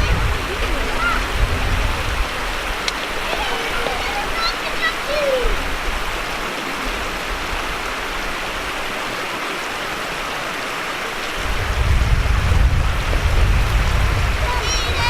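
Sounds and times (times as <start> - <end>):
low rumble: 0.0 - 2.8, 11.4 - 15.0
creek water running over rocks: 0.0 - 15.0.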